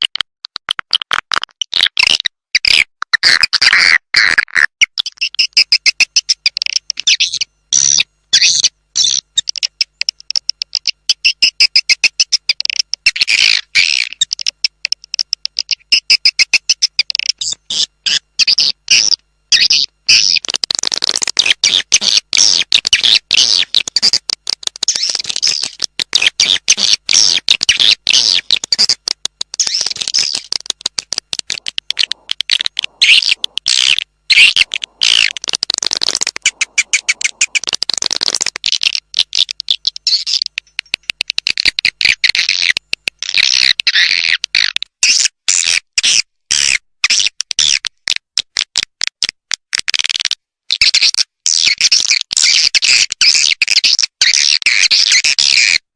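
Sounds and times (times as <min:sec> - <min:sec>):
swiftlet call twittering: 0:21.4 - 0:41.0.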